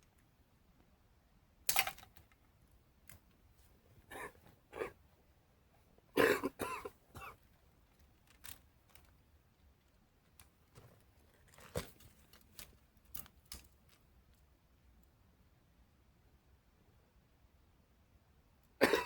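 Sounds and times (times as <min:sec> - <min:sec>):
person coughing: 0:04.1 - 0:05.0, 0:06.2 - 0:07.4, 0:18.8 - 0:19.0.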